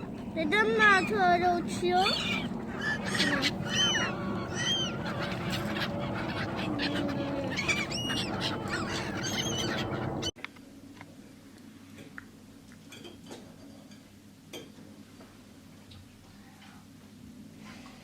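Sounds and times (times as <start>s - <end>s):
background rumble: 0.0s - 10.3s
birds calling: 0.0s - 10.4s.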